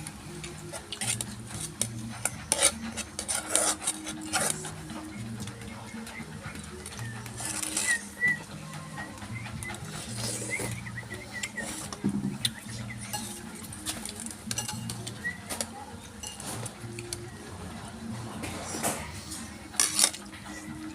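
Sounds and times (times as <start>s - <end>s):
spoon clinking and scraping bowl: 0.7s - 5.1s, 6.0s - 8.4s, 11.4s - 17.2s, 19.8s - 20.3s.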